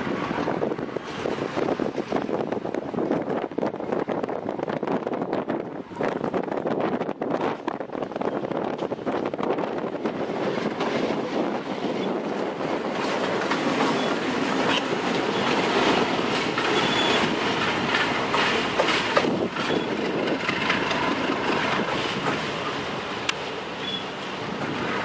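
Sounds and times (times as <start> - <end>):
freight train rumbling past: 0.0 - 25.0
wheels clacking over rail joints: 7.4 - 25.0
train wheels squealing: 13.8 - 15.6, 16.6 - 17.4, 19.6 - 20.0, 23.8 - 24.2.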